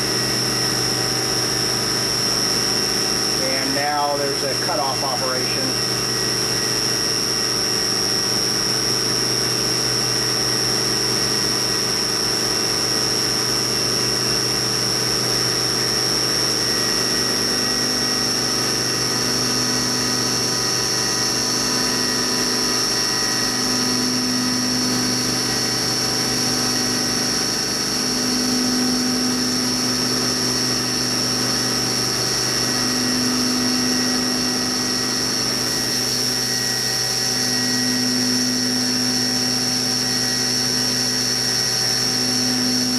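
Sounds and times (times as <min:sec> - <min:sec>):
milling machine whine: 0:00.0 - 0:42.9.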